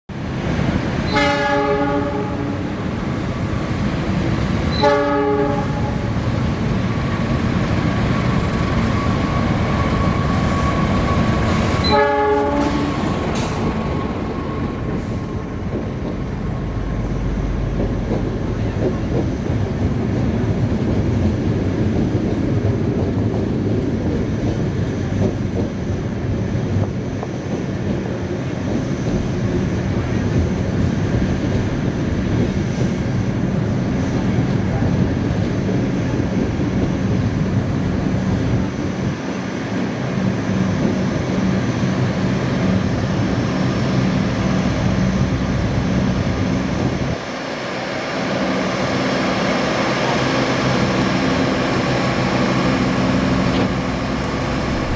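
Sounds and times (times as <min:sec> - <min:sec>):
train rolling on rails: 0:00.1 - 0:54.9
locomotive horn blasts: 0:01.1 - 0:02.6, 0:04.7 - 0:06.1, 0:11.8 - 0:12.8.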